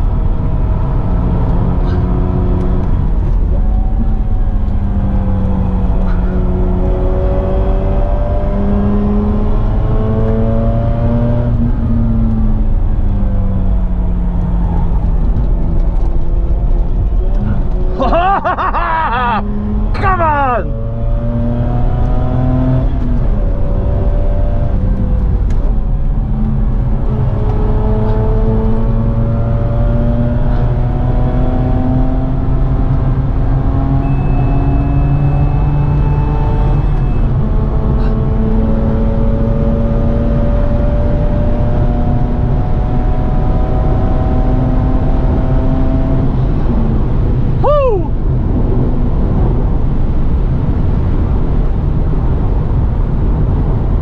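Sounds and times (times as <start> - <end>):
road and wind noise: 0.0 - 54.0
rotary engine revving: 26.6 - 47.6.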